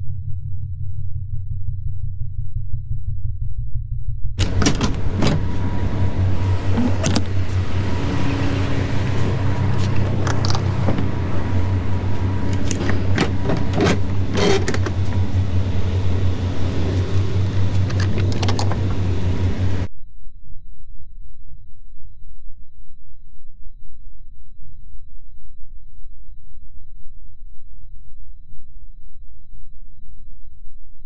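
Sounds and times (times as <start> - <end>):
sharp clicks and rattles: 4.4 - 19.9
truck diesel engine running: 4.4 - 19.9.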